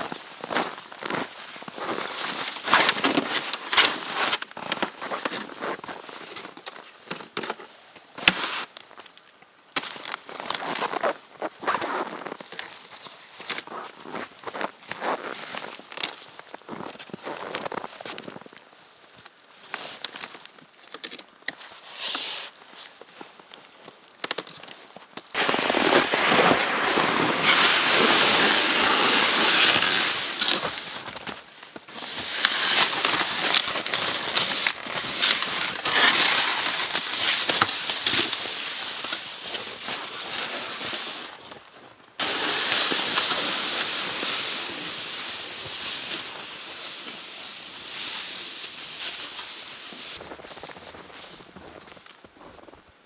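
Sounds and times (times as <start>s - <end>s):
wood fire crackling and hissing: 25.4s - 41.4s, 42.2s - 51.2s.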